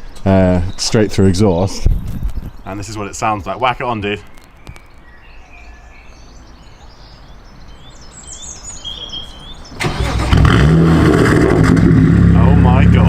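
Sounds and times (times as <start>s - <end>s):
birds chirping: 0.0s - 10.7s
car engine starting and running: 9.7s - 13.0s.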